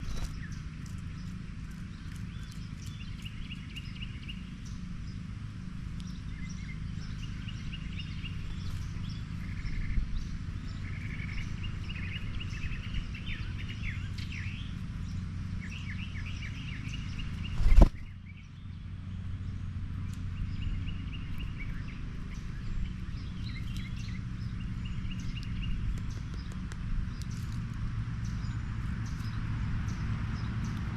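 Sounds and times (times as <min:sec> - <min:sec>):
small birds chirping: 0:00.0 - 0:30.9
steady low hum: 0:00.0 - 0:30.9.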